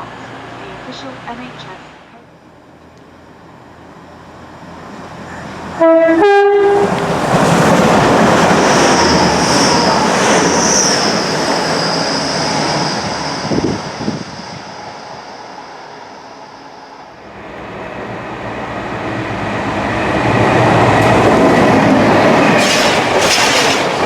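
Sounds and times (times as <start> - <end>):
two-tone train horn: 5.7 - 7.1
train wheels on rails: 6.7 - 16.7, 17.3 - 24.0.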